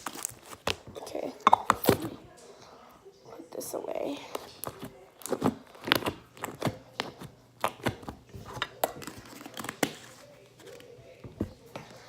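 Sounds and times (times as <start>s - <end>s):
plastic tubs clicking and knocking: 4.3s - 12.0s.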